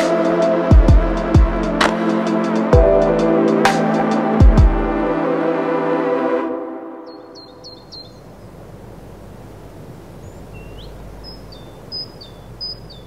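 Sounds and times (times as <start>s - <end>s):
small bird chirping: 7.0s - 8.6s, 10.2s - 13.0s.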